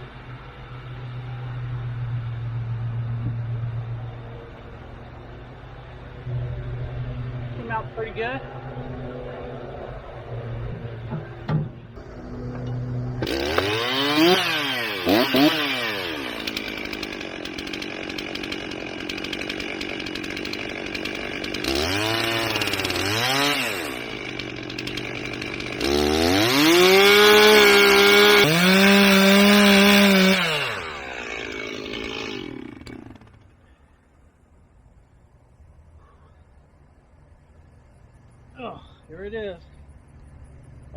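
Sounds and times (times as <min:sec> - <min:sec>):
chainsaw idling and revving: 0:12.0 - 0:33.9.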